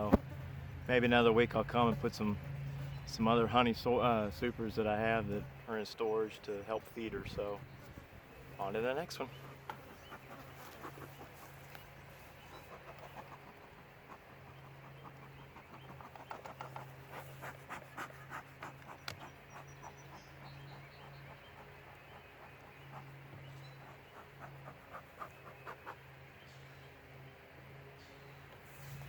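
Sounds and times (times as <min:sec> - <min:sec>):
clicks and rustles of handling: 0:09.1 - 0:20.0
bellows puffing: 0:09.2 - 0:26.6.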